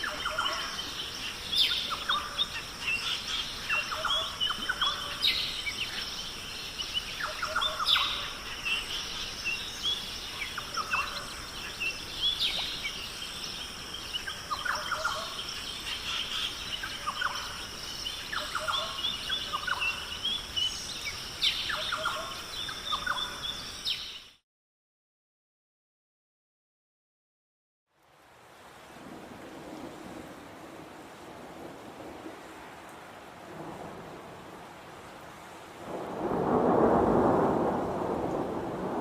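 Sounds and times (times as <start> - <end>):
high-pitched background hiss: 0.0 - 24.4.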